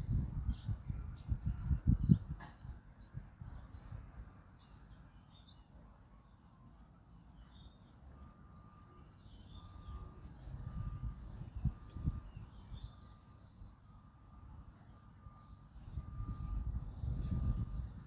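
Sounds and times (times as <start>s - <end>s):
wind rumbling on microphone: 0.0s - 4.4s, 9.6s - 13.7s, 15.8s - 18.0s
small birds chirping: 0.0s - 18.0s
faint repeated steady note: 2.8s - 18.0s.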